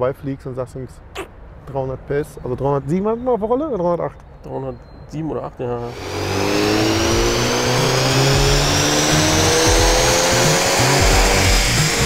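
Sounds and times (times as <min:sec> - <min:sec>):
car engine at full throttle: 0:05.8 - 0:12.0
background music: 0:05.9 - 0:12.0.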